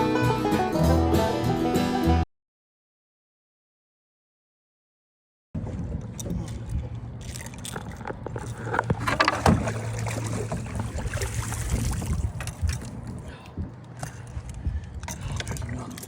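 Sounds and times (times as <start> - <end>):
knocks and bumps in a boat: 5.6 - 15.8
low steady hum: 5.6 - 16.0.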